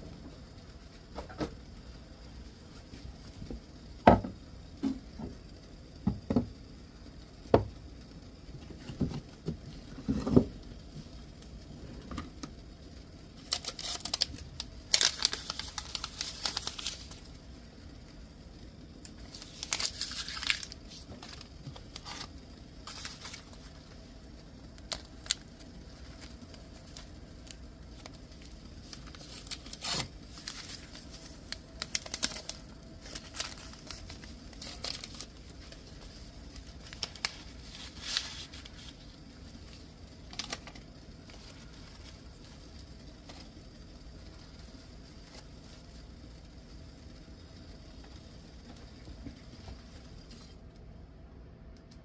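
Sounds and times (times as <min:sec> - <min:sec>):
steady low hum: 0:00.0 - 0:52.0
tea bag packets crinkling: 0:13.4 - 0:17.4, 0:19.0 - 0:24.0, 0:24.6 - 0:43.6.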